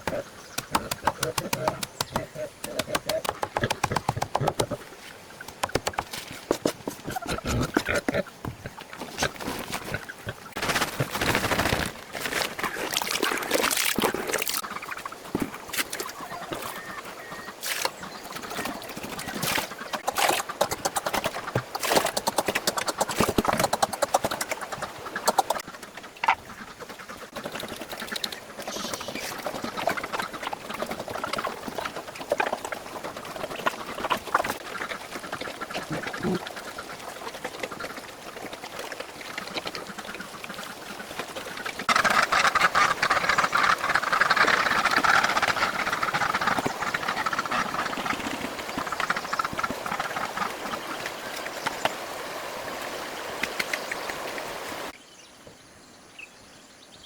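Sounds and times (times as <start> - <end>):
animal calls: 0.0 - 6.0, 16.0 - 26.4, 41.9 - 51.0.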